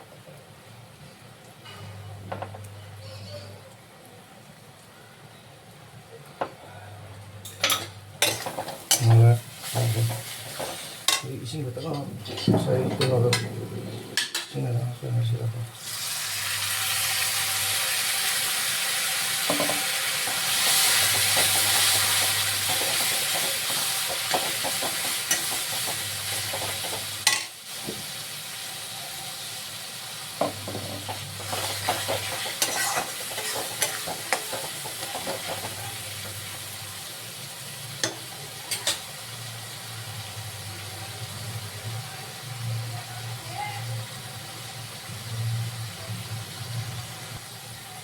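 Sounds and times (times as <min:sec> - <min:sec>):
chicken sizzling in a pan: 0:07.4 - 0:12.4, 0:13.8 - 0:48.0.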